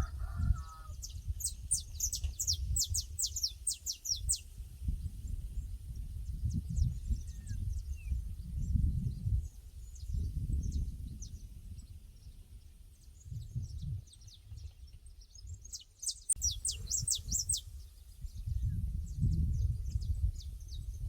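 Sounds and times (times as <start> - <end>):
wind rumbling on microphone: 0.0 - 21.0
small birds chirping: 0.8 - 21.0.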